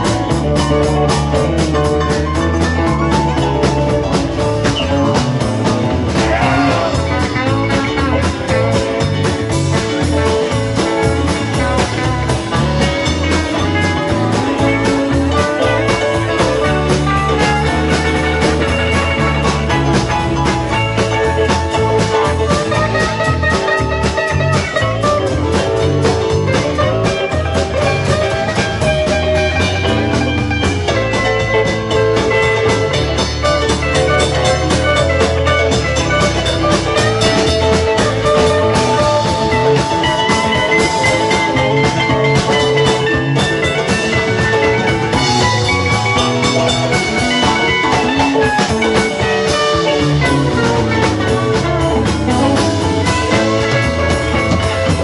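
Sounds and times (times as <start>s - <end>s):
electric guitar lines: 0.0s - 55.0s
steady drum beat: 0.0s - 55.0s.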